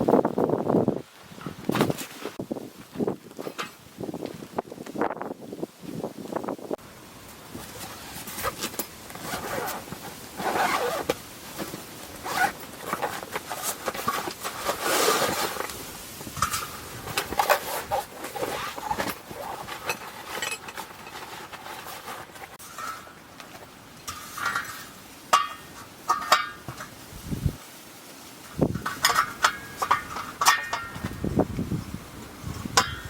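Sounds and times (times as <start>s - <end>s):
gear rustling: 7.5s - 26.7s.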